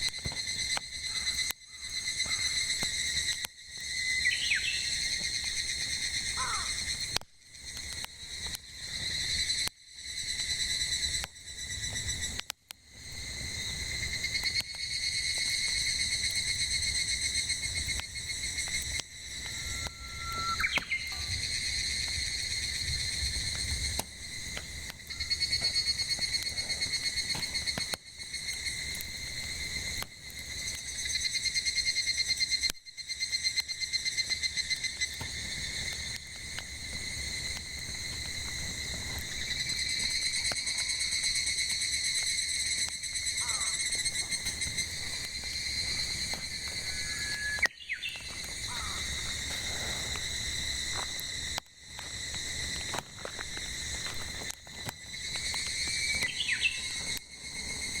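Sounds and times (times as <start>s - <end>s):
cicadas singing: 0.0s - 58.0s
short whistle-like note: 19.6s - 21.3s.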